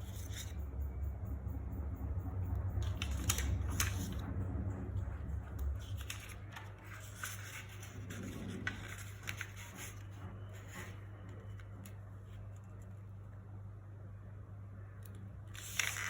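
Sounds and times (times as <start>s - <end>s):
paper rustling and creasing: 0.0s - 0.6s, 2.8s - 4.3s, 5.8s - 12.9s, 15.6s - 16.0s
low hum: 0.0s - 15.0s.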